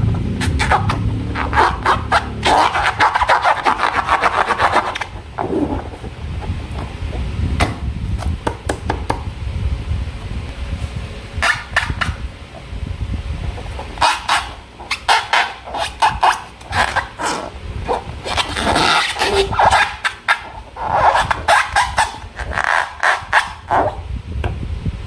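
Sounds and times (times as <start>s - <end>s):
squeaky squelching bursts: 0.4s - 6.1s, 11.4s - 12.2s, 13.6s - 24.0s.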